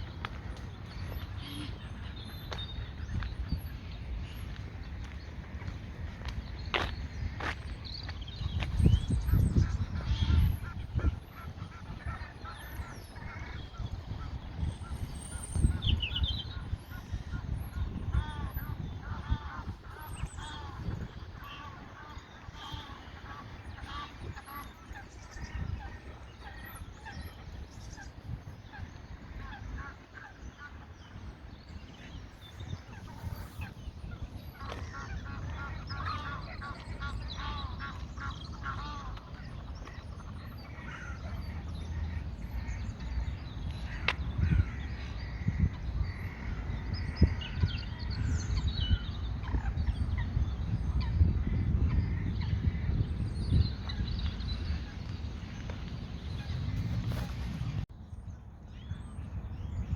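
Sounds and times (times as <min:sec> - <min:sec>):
geese honking: 0:16.4 - 0:31.4, 0:32.8 - 0:42.8.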